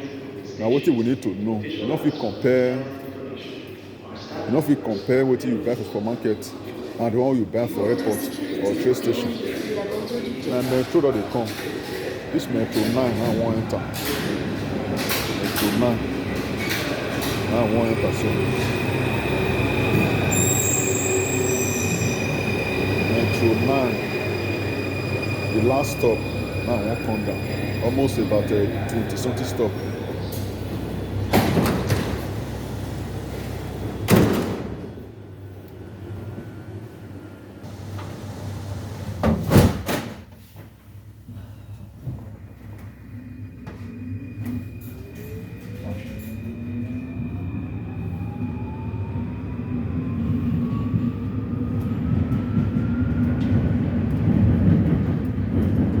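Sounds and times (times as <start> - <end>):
train rumble: 8.1 - 39.7, 40.4 - 56.0
train doors banging shut: 31.3 - 32.6, 34.0 - 35.0, 39.0 - 40.3.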